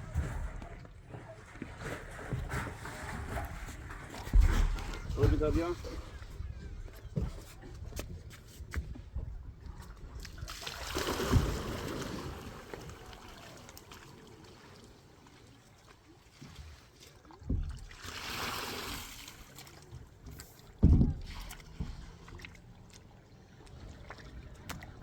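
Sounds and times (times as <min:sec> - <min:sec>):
water splashing and sloshing: 0:00.0 - 0:25.0
low thump: 0:20.8 - 0:22.0.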